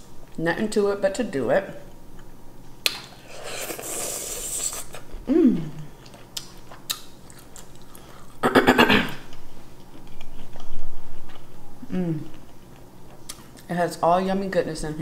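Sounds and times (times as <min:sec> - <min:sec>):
person chewing: 0:02.2 - 0:08.4, 0:09.2 - 0:13.7.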